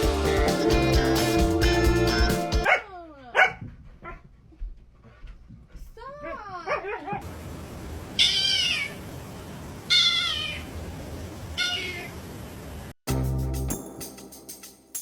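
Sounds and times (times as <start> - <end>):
cat meowing: 9.9 - 10.6, 11.6 - 12.1.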